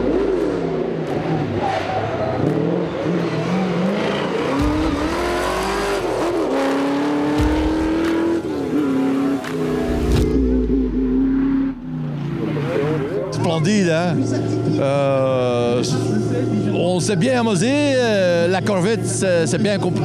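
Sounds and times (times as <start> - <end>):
car engine revving hard: 0.0 - 13.2.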